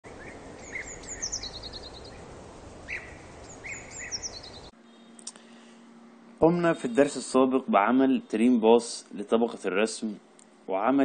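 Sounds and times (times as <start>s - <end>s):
songbirds chirping and trilling: 0.0s - 7.2s
outdoor background hiss: 0.0s - 11.0s
faint steady hum: 0.1s - 11.0s.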